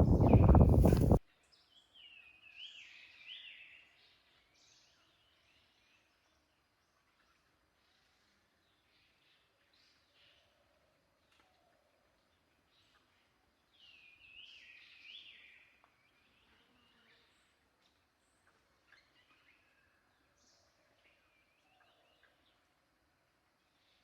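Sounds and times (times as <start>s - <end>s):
birds chirping and warbling: 0.0s - 1.2s.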